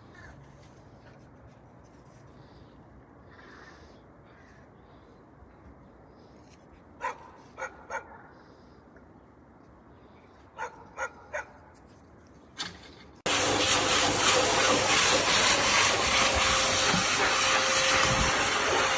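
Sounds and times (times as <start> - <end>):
loud steady hiss: 13.3 - 18.9.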